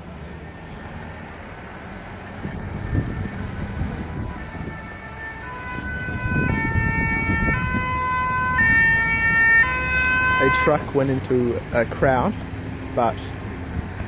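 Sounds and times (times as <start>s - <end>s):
low street rumble: 0.0s - 14.0s
two-tone emergency siren: 0.2s - 1.4s, 2.0s - 10.9s.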